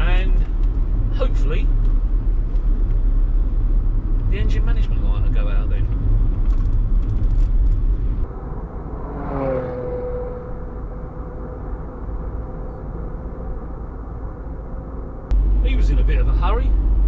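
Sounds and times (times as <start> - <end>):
engine and road rumble: 0.0 - 17.0
passing vehicle whine: 5.9 - 17.0.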